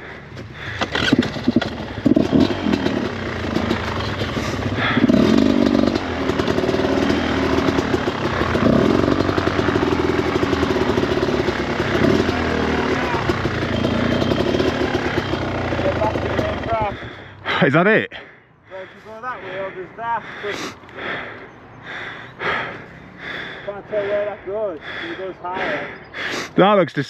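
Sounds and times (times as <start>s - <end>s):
dirt bike engine revving: 0.5s - 17.6s.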